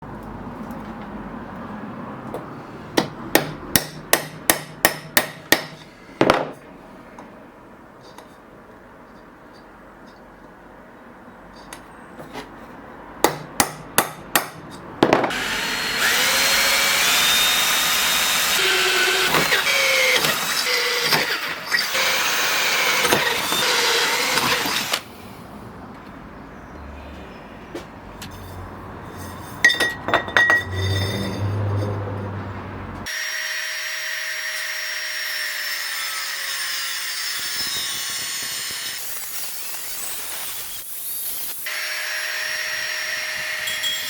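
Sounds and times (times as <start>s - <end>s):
power tool whining: 15.3s - 25.1s.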